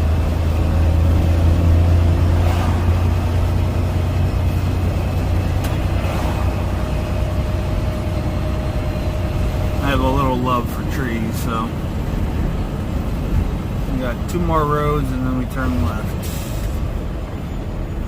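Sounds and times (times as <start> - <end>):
truck diesel engine droning: 0.0 - 18.0.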